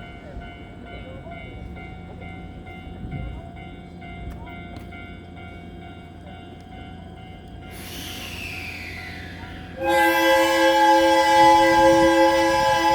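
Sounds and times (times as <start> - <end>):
train low hum: 0.0 - 12.9
high steady tones: 7.2 - 12.9.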